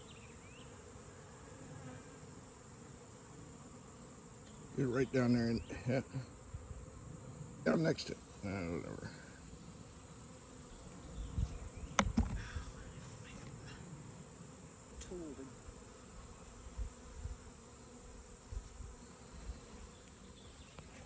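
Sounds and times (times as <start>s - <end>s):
honeybees buzzing: 0.0s - 21.0s
sharp click: 11.9s - 12.4s.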